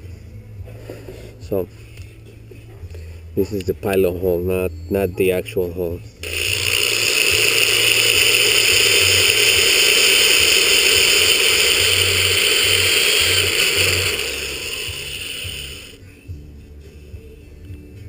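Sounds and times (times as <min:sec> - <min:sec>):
power drill whining: 0:06.2 - 0:16.0.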